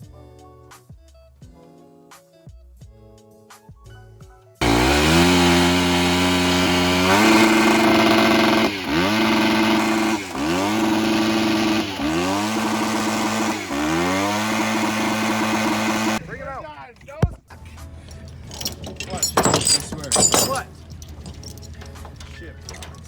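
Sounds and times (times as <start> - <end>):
dirt bike engine revving: 4.6 - 16.4.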